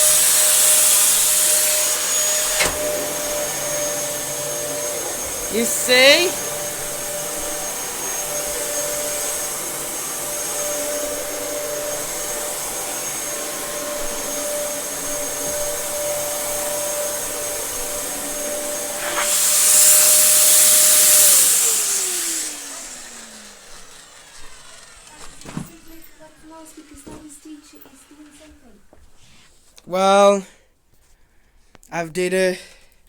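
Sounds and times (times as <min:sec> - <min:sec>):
loud hiss: 0:00.0 - 0:25.1
vacuum motor winding down: 0:00.0 - 0:29.0
vacuum cleaner running: 0:00.0 - 0:29.5
click: 0:02.5 - 0:03.0.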